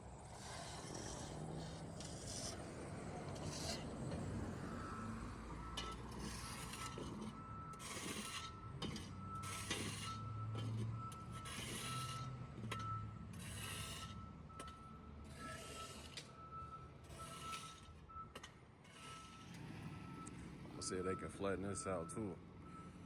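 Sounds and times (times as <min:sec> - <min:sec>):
diesel engine humming: 0:00.0 - 0:23.0
reversing alarm beeping: 0:04.4 - 0:23.0
machine clanking and scraping: 0:05.8 - 0:16.4, 0:17.0 - 0:20.0.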